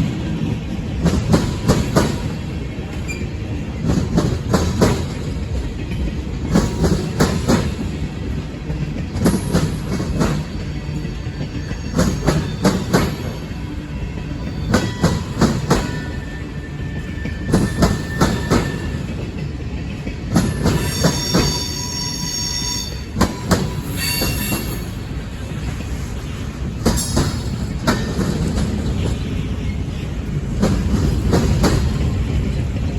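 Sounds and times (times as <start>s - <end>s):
train wheels clacking on rail joints: 0.0s - 32.9s
wheel squeal: 14.5s - 19.1s, 20.5s - 23.1s, 23.7s - 25.0s.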